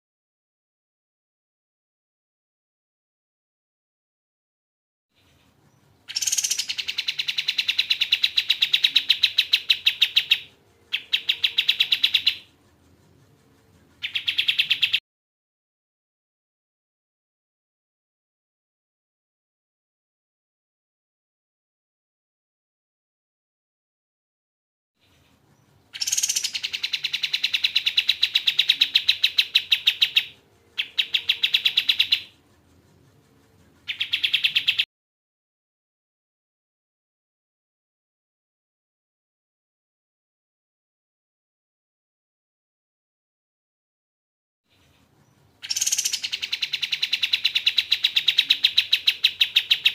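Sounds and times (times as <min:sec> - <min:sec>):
bird calling in fast trills: 0:06.0 - 0:12.5, 0:14.0 - 0:15.0, 0:25.9 - 0:32.4, 0:33.8 - 0:34.9, 0:45.6 - 0:49.9.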